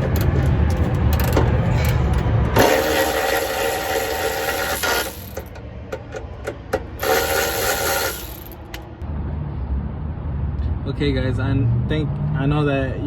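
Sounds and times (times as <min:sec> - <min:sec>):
power tool running: 0:02.5 - 0:05.6, 0:06.9 - 0:08.6.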